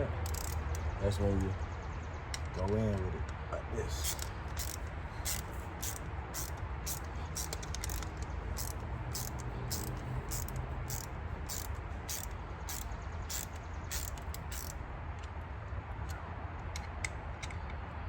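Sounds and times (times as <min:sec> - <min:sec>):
insects chirping: 0:03.8 - 0:14.8.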